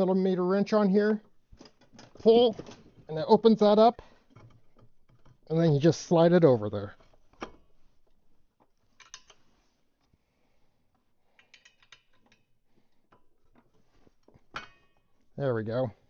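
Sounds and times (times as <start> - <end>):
wrench clicking on metal: 11.3 - 12.5.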